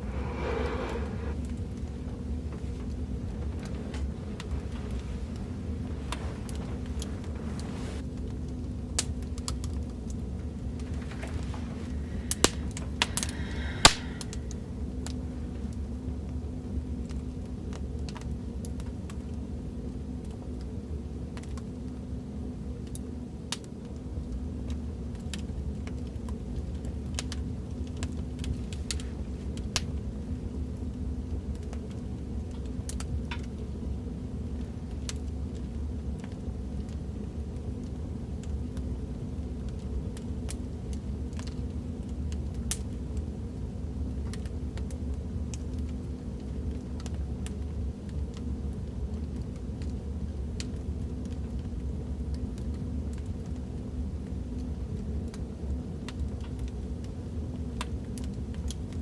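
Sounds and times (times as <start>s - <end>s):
fire crackling: 0.0s - 15.9s
fire popping and snapping: 0.0s - 15.9s.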